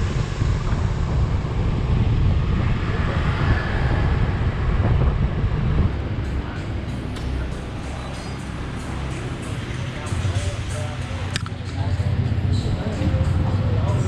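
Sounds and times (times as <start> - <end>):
road and vehicle noise: 0.0 - 14.0
wind buffeting microphone: 0.0 - 14.0.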